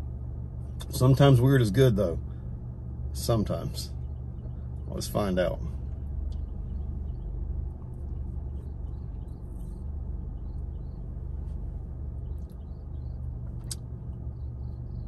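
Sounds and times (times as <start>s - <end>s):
car idling rumble: 0.0s - 15.0s.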